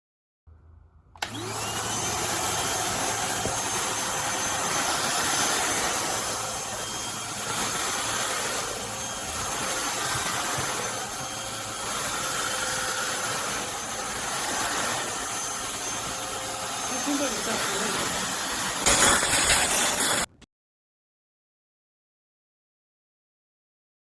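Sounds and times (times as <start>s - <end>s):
stick vacuum motor running: 1.2s - 20.4s.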